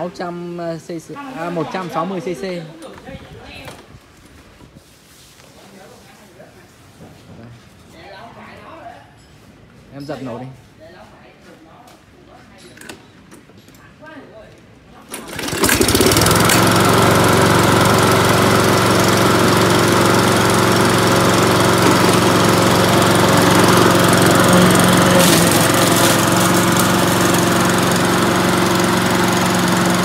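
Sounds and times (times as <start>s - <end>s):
mower pull-start: 15.0s - 30.0s
lawn mower engine running: 15.1s - 30.0s.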